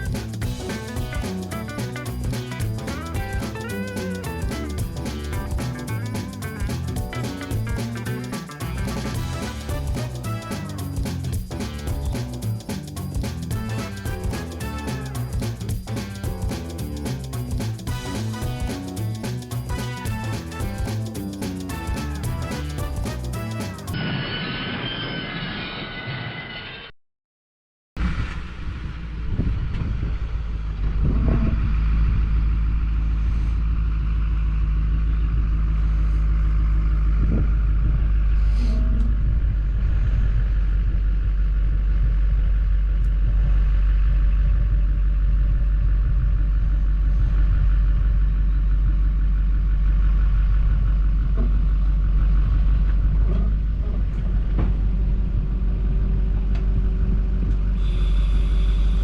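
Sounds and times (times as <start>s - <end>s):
motor vehicle rumbling: 0.0s - 24.0s, 28.0s - 59.0s.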